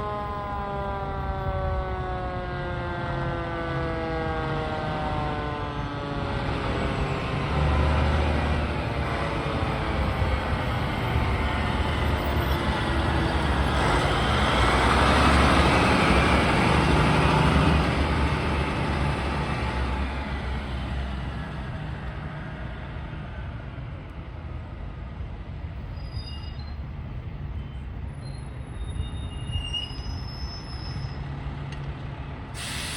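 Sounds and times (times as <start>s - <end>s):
diesel engine and road noise: 0.0s - 32.9s
high brake squeals: 25.8s - 31.3s.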